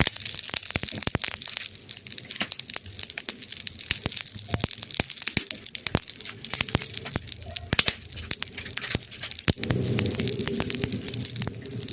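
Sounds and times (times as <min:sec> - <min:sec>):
low steady fire sound: 0:00.0 - 0:11.9
wood fire crackling and popping: 0:00.0 - 0:11.9.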